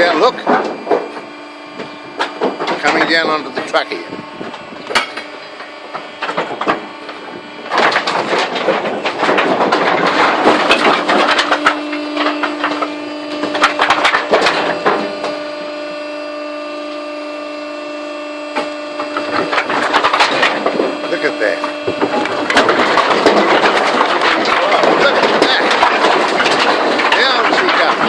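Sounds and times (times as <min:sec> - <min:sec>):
wood clattering and splintering: 0:00.0 - 0:16.4, 0:17.0 - 0:28.0
machine hum: 0:00.0 - 0:28.0
wood knocking: 0:21.6 - 0:28.0.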